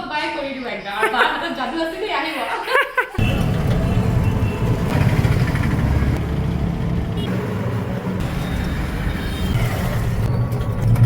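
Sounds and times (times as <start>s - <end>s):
road traffic noise: 3.2s - 11.0s
vehicle engine rumble: 3.2s - 11.0s.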